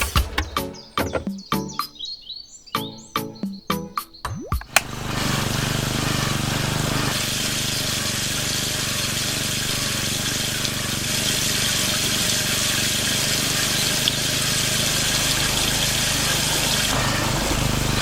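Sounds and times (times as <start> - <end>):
water pump motor humming: 4.5 - 18.0
water spraying: 4.6 - 18.0.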